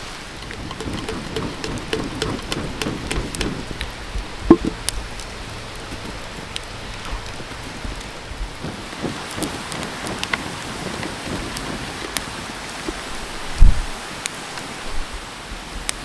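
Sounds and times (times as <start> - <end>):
fire crackles: 0.0 - 16.0
knock: 4.5 - 4.8.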